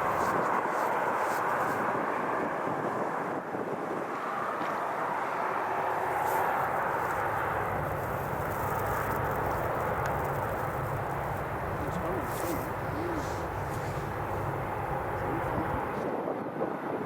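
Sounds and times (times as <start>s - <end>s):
jet aircraft noise: 0.0s - 17.0s
low hum: 6.7s - 16.0s.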